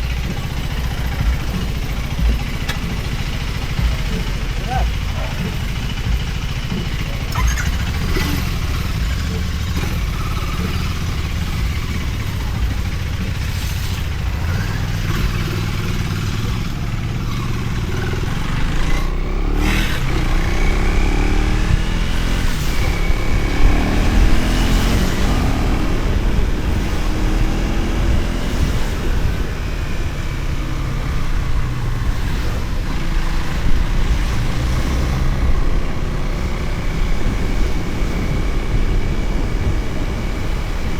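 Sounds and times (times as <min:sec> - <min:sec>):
motorcycle engine: 0:00.0 - 0:40.9
wind rumble on microphone: 0:17.9 - 0:40.9.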